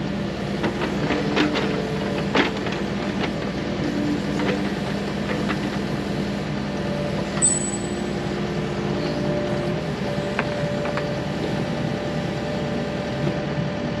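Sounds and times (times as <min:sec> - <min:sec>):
metallic tool clinks: 0:07.4 - 0:08.0.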